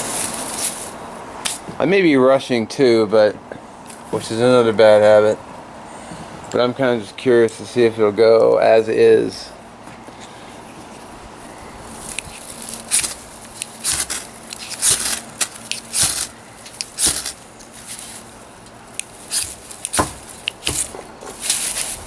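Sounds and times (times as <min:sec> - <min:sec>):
ferro rod scraping: 0:10.1 - 0:22.0.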